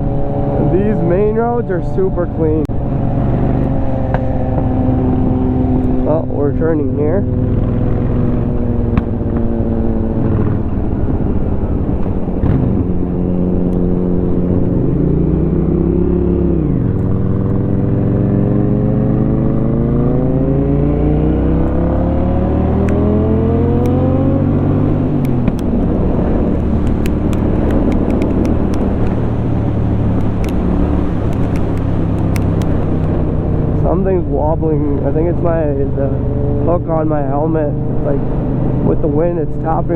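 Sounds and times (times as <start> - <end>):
wind noise: 0.0 - 39.6
motorcycle engine revving: 0.0 - 39.9
helmet hook ticking in wind: 23.8 - 33.4.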